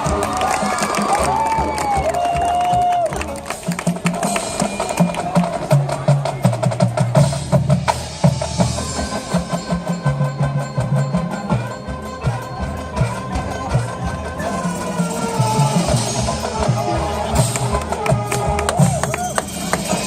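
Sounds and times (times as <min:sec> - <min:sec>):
drumline playing fast strokes: 0:00.0 - 0:20.0
marching band held notes: 0:00.0 - 0:20.0.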